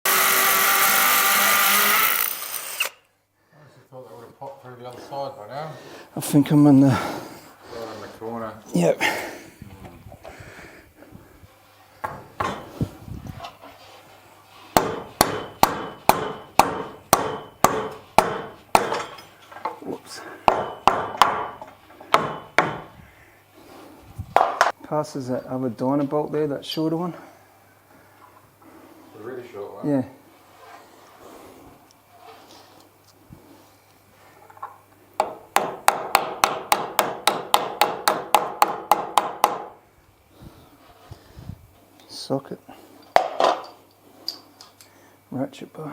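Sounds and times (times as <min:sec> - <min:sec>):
hammer striking metal anchor: 0:14.8 - 0:19.3, 0:20.4 - 0:22.9.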